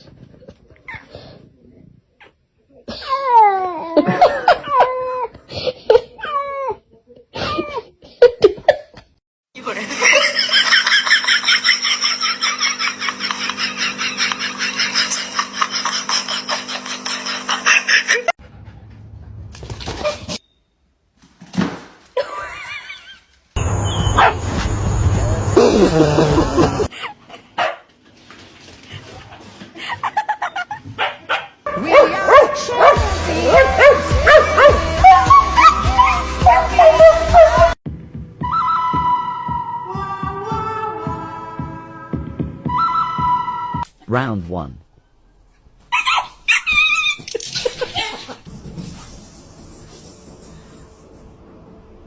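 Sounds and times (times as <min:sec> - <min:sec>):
dog yipping and barking: 0:23.8 - 0:24.4, 0:31.0 - 0:37.8, 0:45.9 - 0:47.4.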